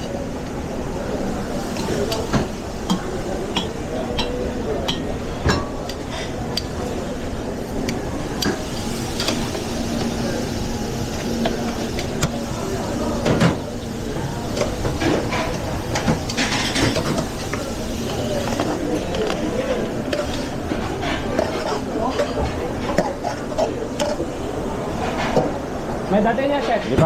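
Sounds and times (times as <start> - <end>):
faint background voices: 0.0 - 27.0
clinks of pans and plates: 1.8 - 6.7.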